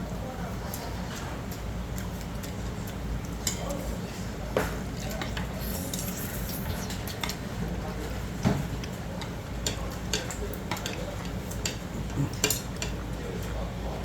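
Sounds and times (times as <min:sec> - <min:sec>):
steady background noise: 0:00.0 - 0:14.0
utensils clicking against a bowl: 0:00.6 - 0:03.9, 0:04.7 - 0:07.4, 0:09.2 - 0:13.3.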